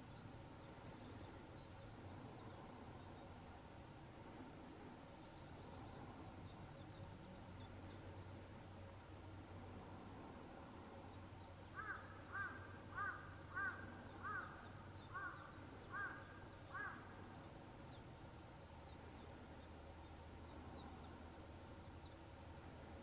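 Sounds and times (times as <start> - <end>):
faint low background hum: 0.0 - 23.0
bird calling: 11.7 - 17.3.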